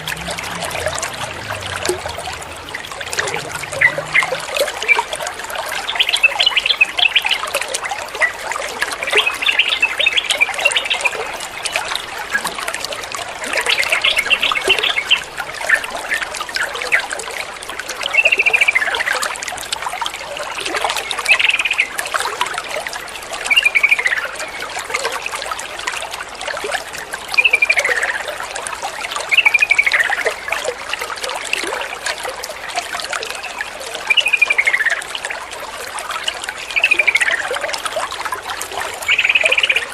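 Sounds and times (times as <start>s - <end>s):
trickle of running water: 0.0s - 39.9s.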